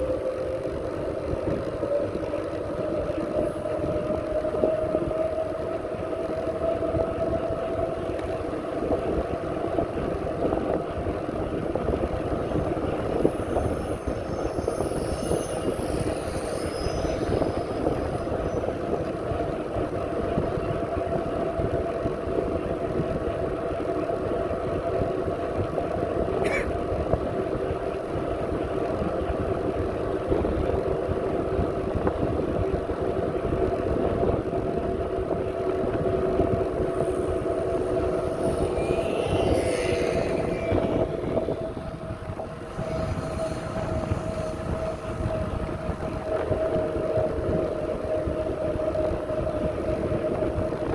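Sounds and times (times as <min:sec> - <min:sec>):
bicycle running noise: 0:00.0 - 0:50.9
wind buffeting microphone: 0:00.0 - 0:50.9
steady hum: 0:00.6 - 0:21.8, 0:34.7 - 0:50.9.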